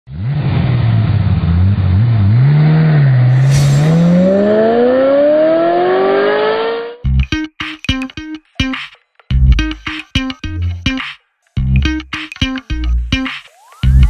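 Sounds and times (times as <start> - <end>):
car engine revving: 0.1 - 7.0
brief sharp noise: 3.3 - 4.7.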